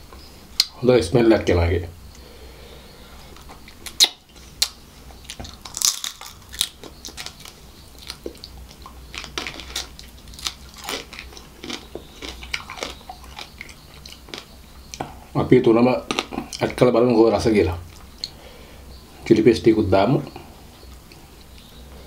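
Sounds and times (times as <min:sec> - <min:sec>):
crunching fried prawn: 0:03.3 - 0:15.1
chewing: 0:03.3 - 0:15.2.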